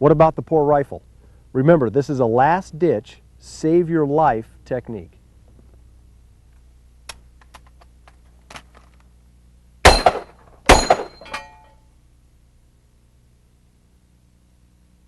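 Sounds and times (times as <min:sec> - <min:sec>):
revolver shots with metallic ring: 0:09.8 - 0:11.8.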